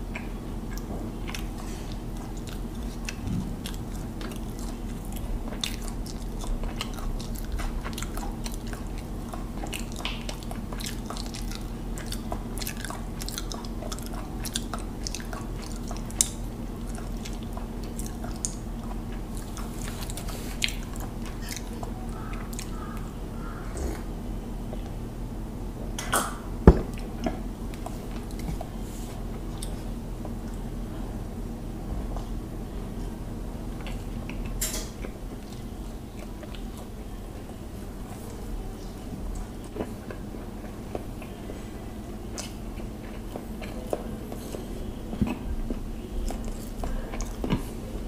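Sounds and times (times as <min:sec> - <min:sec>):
person chewing with wet mouth sounds: 0:00.0 - 0:24.1, 0:26.8 - 0:31.0, 0:32.1 - 0:48.0
low hum: 0:02.0 - 0:09.6.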